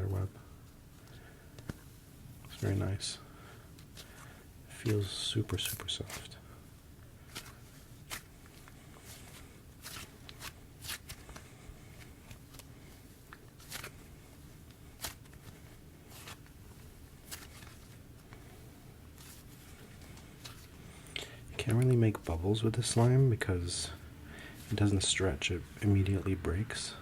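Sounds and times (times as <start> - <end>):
hands squishing slime: 7.3 - 12.7, 14.7 - 16.4.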